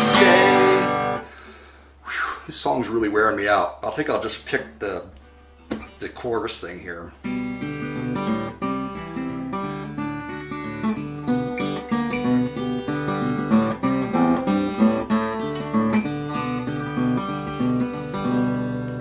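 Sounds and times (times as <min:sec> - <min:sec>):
acoustic guitar country melody: 0:00.0 - 0:01.4, 0:05.3 - 0:19.0.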